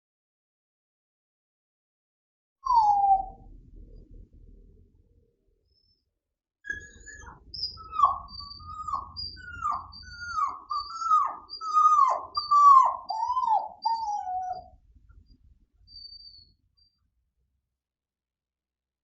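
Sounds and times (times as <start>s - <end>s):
bird chirping: 2.6s - 3.4s, 6.7s - 17.0s
dog whining: 2.6s - 3.4s, 6.7s - 14.8s.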